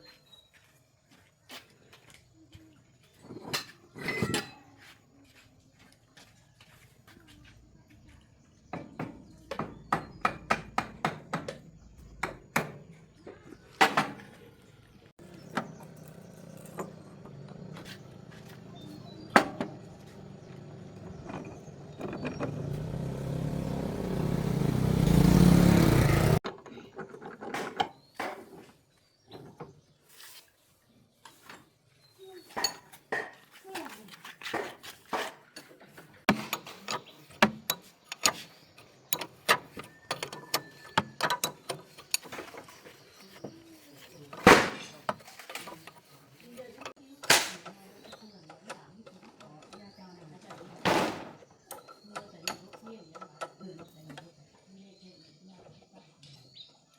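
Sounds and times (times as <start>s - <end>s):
metal tools clinking: 3.6s - 4.7s, 36.3s - 43.0s.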